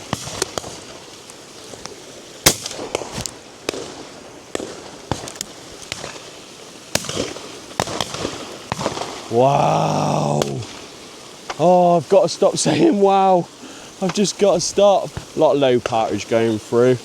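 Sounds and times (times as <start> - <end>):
shotgun shots: 2.4 - 5.3, 6.9 - 9.2.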